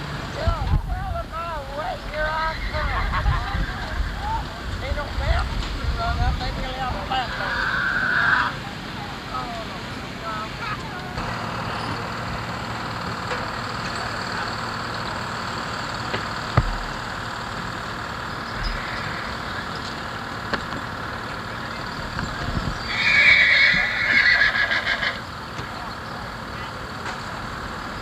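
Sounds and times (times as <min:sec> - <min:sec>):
horse whinnying: 0:07.4 - 0:08.5, 0:18.6 - 0:19.4, 0:22.8 - 0:25.2.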